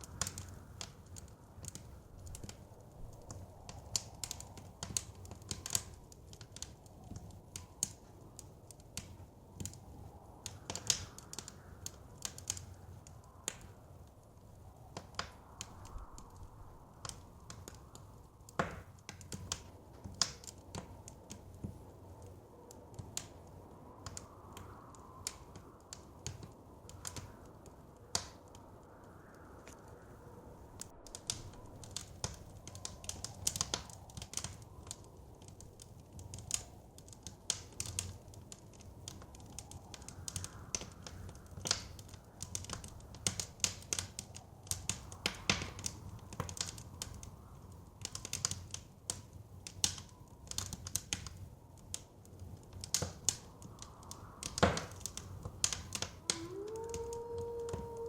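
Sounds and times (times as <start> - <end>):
blizzard wind rushing: 0.0 - 43.3
wood fire crackling and popping: 0.0 - 58.0.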